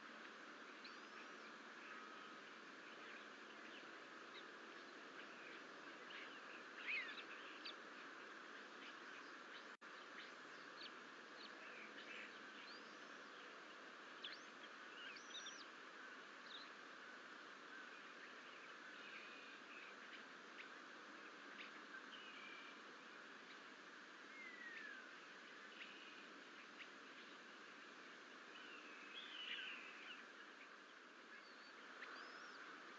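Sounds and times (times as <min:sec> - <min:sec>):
steady background hiss: 0:00.0 - 0:32.9.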